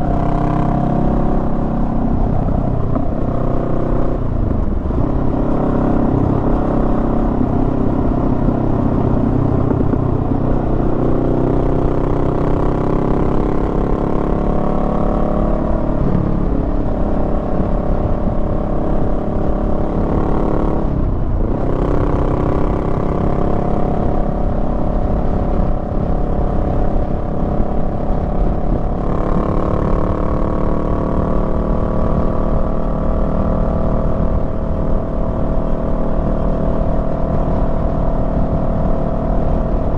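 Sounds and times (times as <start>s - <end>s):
motorcycle engine accelerating: 0.0s - 39.9s
wind noise: 0.0s - 39.9s.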